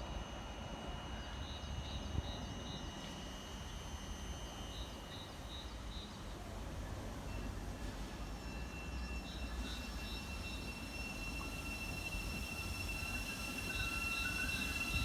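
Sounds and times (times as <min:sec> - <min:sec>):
train rumbling: 0:06.3 - 0:15.0.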